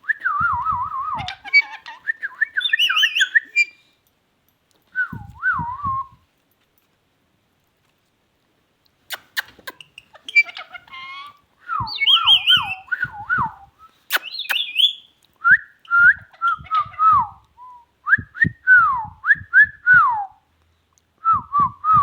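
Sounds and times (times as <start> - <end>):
parrot whistling: 0.2 - 3.8, 9.1 - 17.4.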